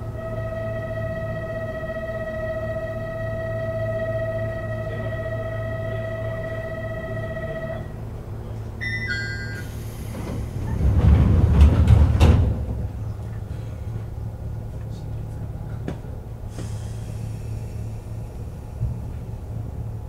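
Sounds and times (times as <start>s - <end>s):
train doors closing with thud: 8.0s - 19.9s
electronic departure bell: 8.8s - 9.8s
falling two-note signal: 8.8s - 9.8s
air hiss: 16.5s - 18.8s.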